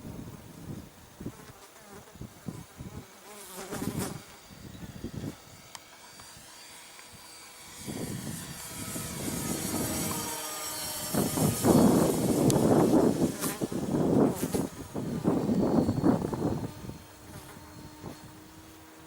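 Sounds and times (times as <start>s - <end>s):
model plane motor buzzing: 0.0s - 19.0s
wind buffeting microphone: 3.7s - 6.5s, 7.1s - 18.9s.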